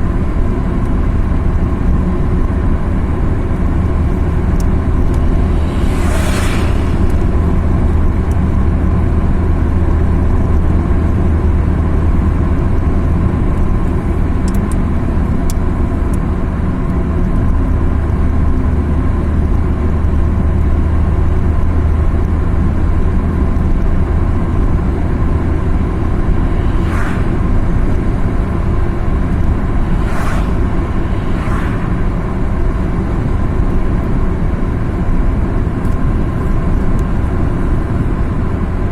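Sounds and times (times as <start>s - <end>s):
car engine drone: 0.0s - 38.9s
road and tyre noise: 0.0s - 38.9s
brief rushing noises: 4.2s - 8.6s, 25.9s - 33.2s.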